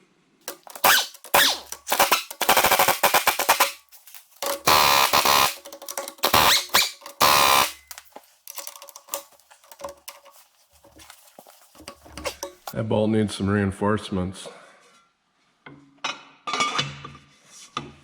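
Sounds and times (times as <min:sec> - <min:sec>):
impact wrench rattling: 0:00.5 - 0:12.8.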